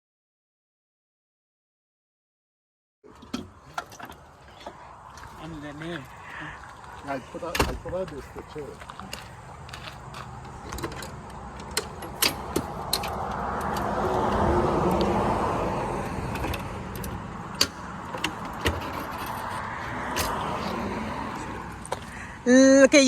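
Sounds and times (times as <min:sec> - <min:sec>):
motor vehicle passing: 0:03.1 - 0:23.0
sharp clicks and small knocks: 0:08.8 - 0:15.2, 0:16.3 - 0:20.5.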